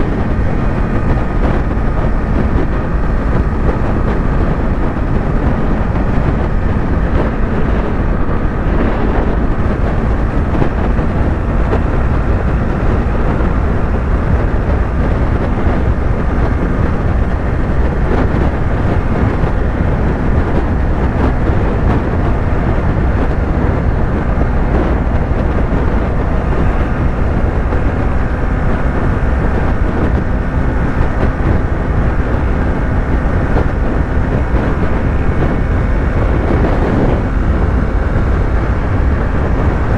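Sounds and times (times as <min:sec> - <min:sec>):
motorcycle engine cruising: 0:00.0 - 0:39.9
road noise: 0:00.0 - 0:39.9
wind rushing: 0:00.0 - 0:39.9.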